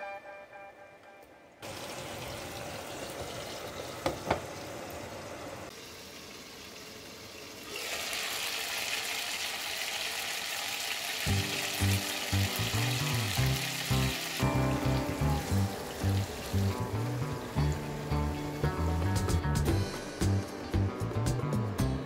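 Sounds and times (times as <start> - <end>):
meat sizzling in hot oil: 5.7 - 19.1
background music: 11.3 - 22.0.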